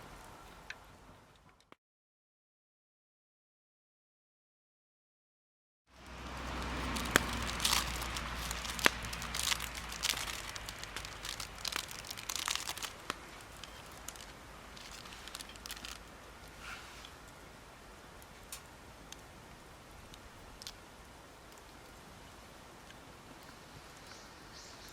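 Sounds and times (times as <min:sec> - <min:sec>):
campfire crackling: 0:05.9 - 0:24.9.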